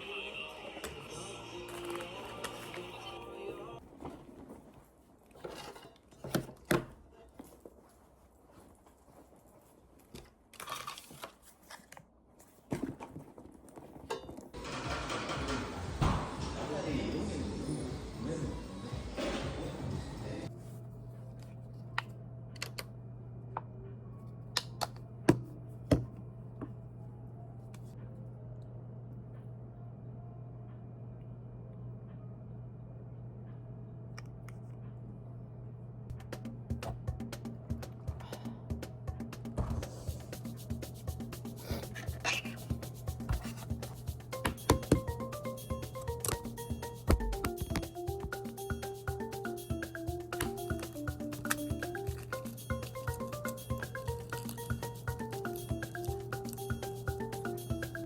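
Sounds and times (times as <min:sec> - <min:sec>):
low room hum: 0:00.0 - 0:58.0
crinkling and rustling: 0:01.6 - 0:03.1, 0:03.8 - 0:15.6, 0:41.6 - 0:45.2, 0:50.4 - 0:56.7.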